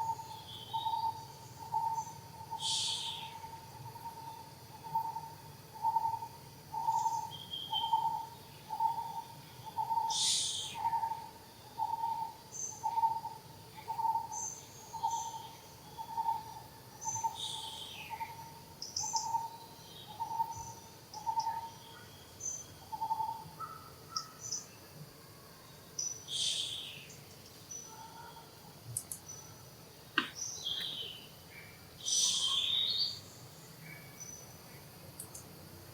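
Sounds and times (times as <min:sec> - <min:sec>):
birds chirping: 0:30.2 - 0:31.3.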